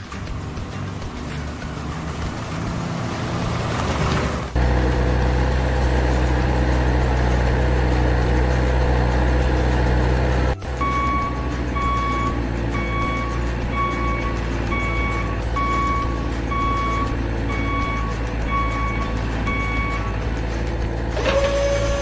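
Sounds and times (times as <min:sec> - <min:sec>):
truck reversing alarm beeps: 0:00.0 - 0:04.0, 0:10.4 - 0:22.0
heavy truck engine droning: 0:00.0 - 0:22.0.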